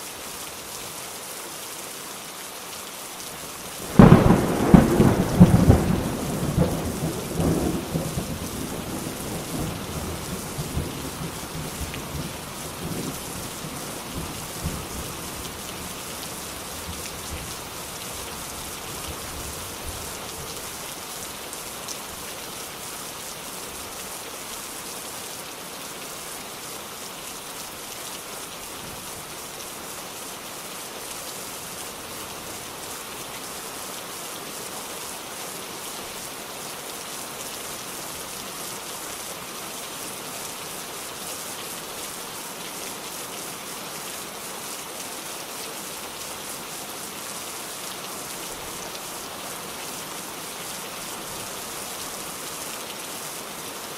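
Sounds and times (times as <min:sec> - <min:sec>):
dense rain falling: 0:00.0 - 0:53.9
low rumble of thunder: 0:03.9 - 0:15.0.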